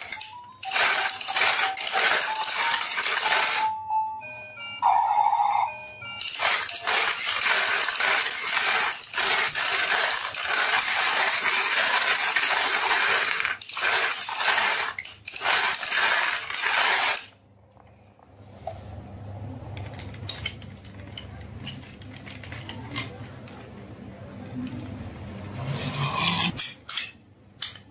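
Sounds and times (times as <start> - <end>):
marbles clattering down wooden run: 0.0 - 3.7, 6.2 - 17.2.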